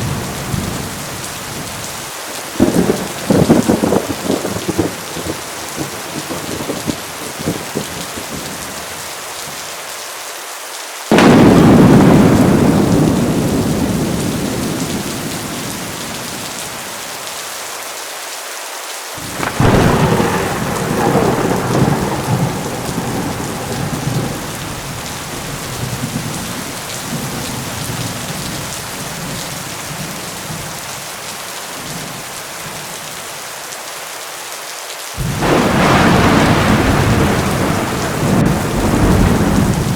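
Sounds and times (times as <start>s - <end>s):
thunderclaps and rumble: 0.0s - 9.0s, 11.1s - 17.0s, 19.2s - 30.8s, 35.2s - 39.9s
heavy rain falling: 0.0s - 39.9s.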